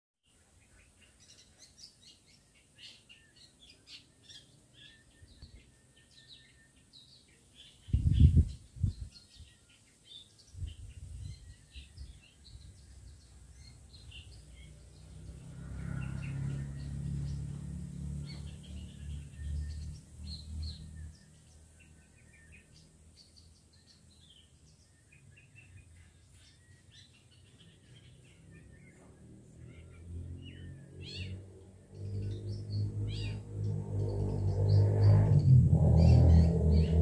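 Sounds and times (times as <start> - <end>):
low rumble with hum: 32.0 - 37.0.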